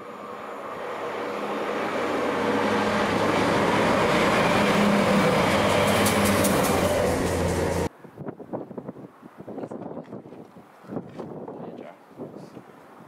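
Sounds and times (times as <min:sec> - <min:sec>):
train engine hum: 0:00.0 - 0:07.9
wheels rumbling on rails: 0:00.0 - 0:07.9.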